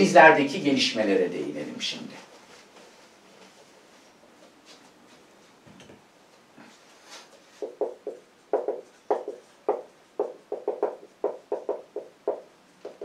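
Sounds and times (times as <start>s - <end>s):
writing taps and strokes on board: 7.3s - 13.0s.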